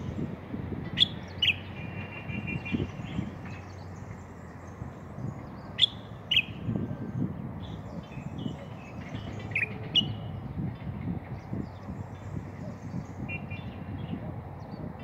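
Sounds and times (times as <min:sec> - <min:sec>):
bird calling sharp chirps: 0:01.0 - 0:03.7.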